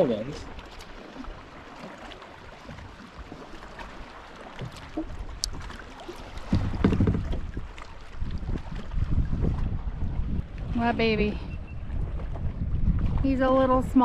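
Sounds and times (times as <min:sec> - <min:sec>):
water sounds: 0:00.0 - 0:14.0
wind rumble on microphone: 0:04.6 - 0:14.0.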